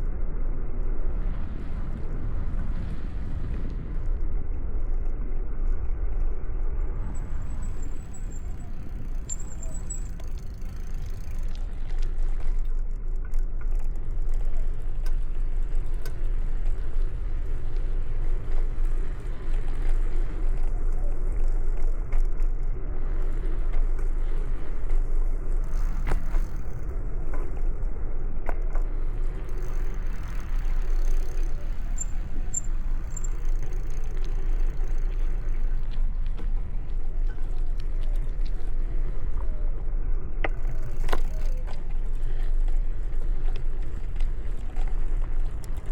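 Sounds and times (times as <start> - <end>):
wind and road noise: 0.0 - 45.9
street traffic: 6.6 - 45.9
bicycle clicks and rattles: 7.0 - 45.9.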